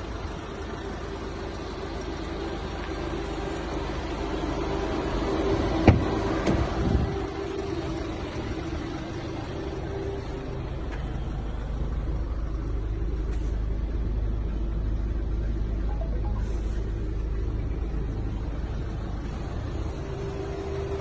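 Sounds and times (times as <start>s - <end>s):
van engine idling: 0.0s - 21.0s.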